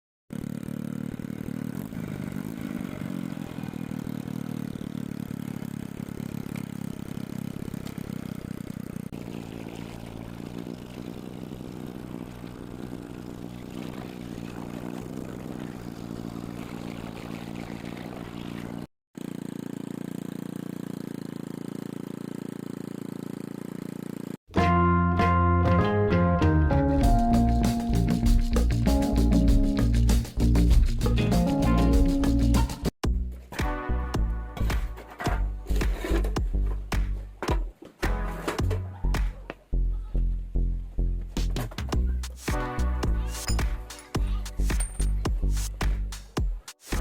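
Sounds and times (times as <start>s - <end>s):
small motorcycle engine idling: 0.3s - 24.4s.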